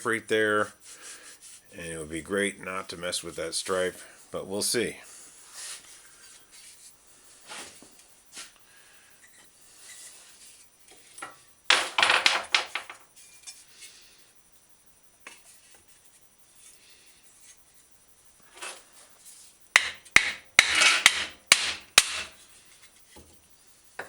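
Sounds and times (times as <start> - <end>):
wood knocking on metal fender: 19.8 - 22.3.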